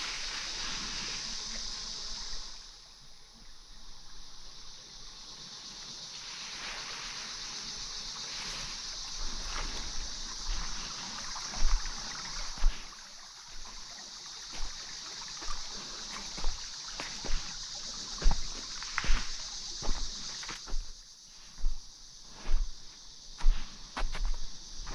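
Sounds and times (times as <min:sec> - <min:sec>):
outdoor ambience hiss: 0:00.0 - 0:24.9
trickle of running water: 0:04.0 - 0:20.8
footsteps on forest trail: 0:06.5 - 0:24.9.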